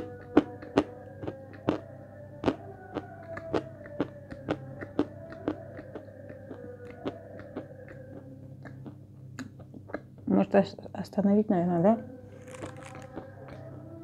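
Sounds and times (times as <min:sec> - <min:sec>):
crunching while chewing chalk: 0:12.4 - 0:13.7.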